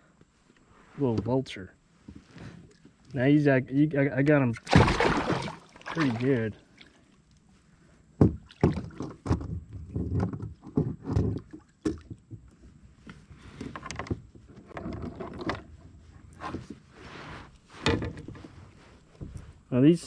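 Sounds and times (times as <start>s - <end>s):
water sloshing: 4.7s - 7.2s.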